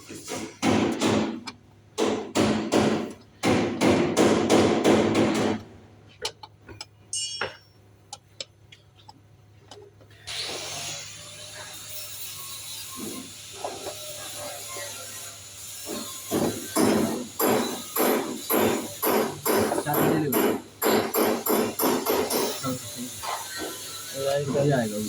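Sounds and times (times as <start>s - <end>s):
hand tool strokes: 10.3s - 25.0s.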